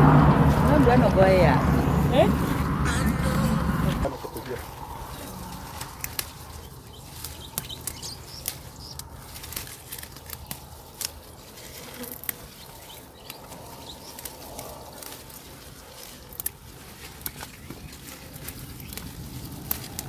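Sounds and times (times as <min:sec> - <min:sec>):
leafy plants rustling: 0:00.0 - 0:20.0
stems snapping and crackling: 0:00.0 - 0:20.0.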